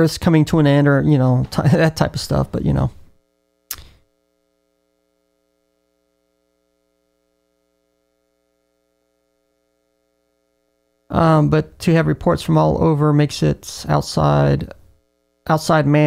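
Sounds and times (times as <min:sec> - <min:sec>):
faint electrical hum: 0:00.0 - 0:16.0
brief clipped sound: 0:03.7 - 0:04.0.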